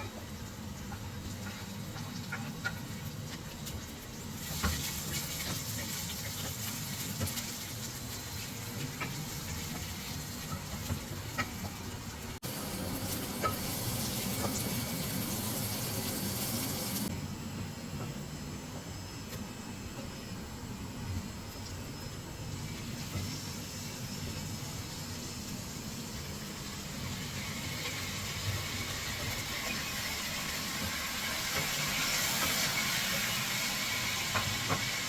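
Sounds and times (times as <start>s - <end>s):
pan hissing on stove: 12.4s - 17.1s, 22.7s - 35.0s.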